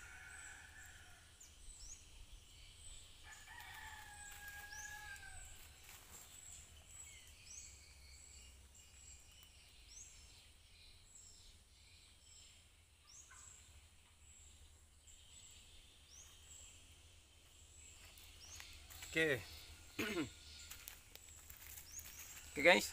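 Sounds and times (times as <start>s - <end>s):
faint bird chirps: 1.7s - 22.9s.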